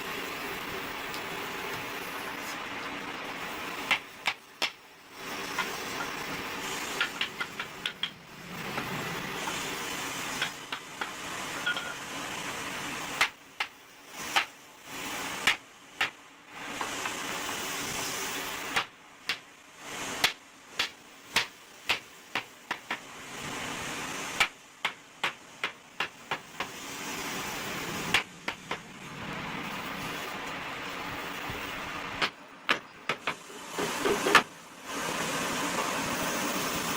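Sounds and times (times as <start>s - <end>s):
steady hiss: 0.0s - 36.9s
sharp taps and knocks: 3.9s - 4.8s, 7.0s - 8.9s, 10.4s - 12.0s, 13.2s - 14.5s, 18.7s - 19.5s, 20.2s - 23.1s, 24.4s - 26.8s, 28.1s - 28.9s, 32.2s - 34.5s.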